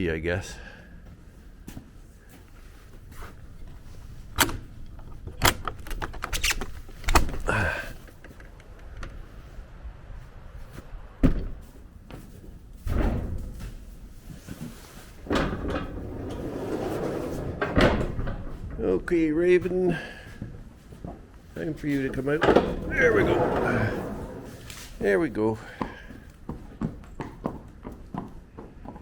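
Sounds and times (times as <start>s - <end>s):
stall doors and latches clanking: 2.8s - 9.4s, 15.1s - 20.4s, 21.8s - 25.3s
rough sliding noise: 14.2s - 18.1s, 21.6s - 25.6s.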